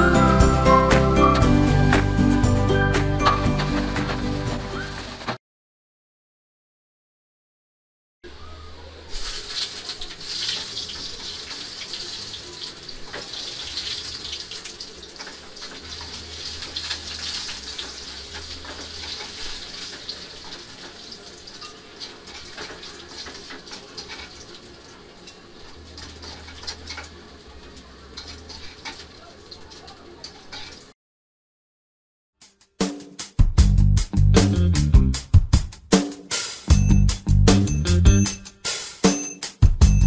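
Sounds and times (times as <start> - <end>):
chips frying in hot oil: 8.8 - 31.0.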